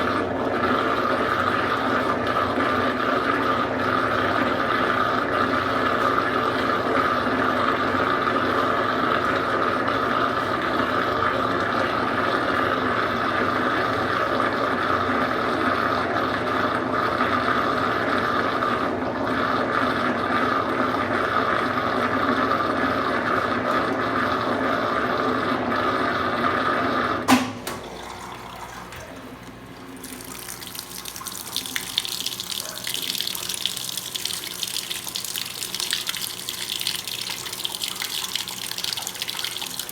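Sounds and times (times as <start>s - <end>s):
washing machine humming: 0.0s - 39.9s
water rushing into tub: 0.0s - 39.9s
washing machine click: 27.2s - 29.6s.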